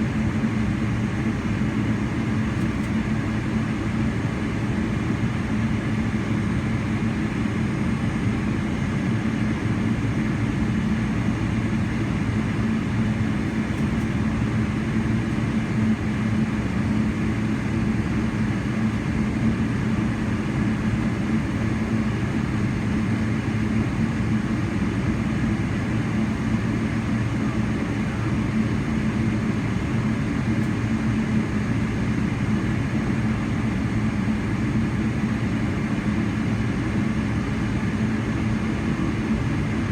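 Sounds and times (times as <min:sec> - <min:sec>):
jet engine cabin hum: 0:00.0 - 0:39.9.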